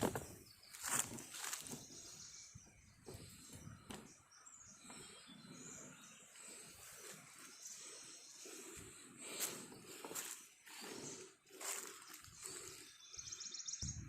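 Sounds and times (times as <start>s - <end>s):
high bird chirps: 0.2s - 14.0s.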